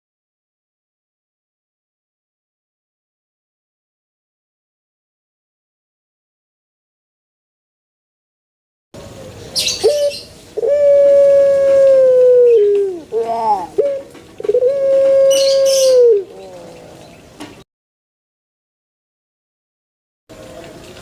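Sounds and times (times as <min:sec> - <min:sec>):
collared dove cooing: 0:09.6 - 0:17.3.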